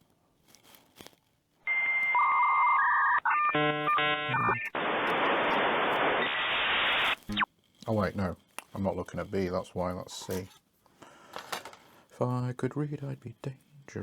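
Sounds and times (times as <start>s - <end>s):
held electronic tones: 1.7s - 7.5s
harsh steady hiss: 4.7s - 7.4s.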